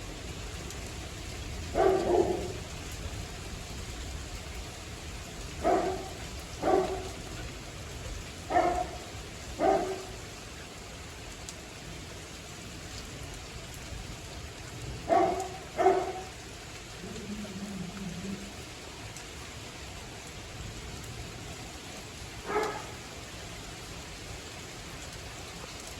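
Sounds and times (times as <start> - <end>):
steady rain falling: 0.0 - 25.9
dog barking: 1.7 - 2.6, 5.6 - 7.3, 8.5 - 10.2, 15.0 - 16.4, 22.4 - 23.0.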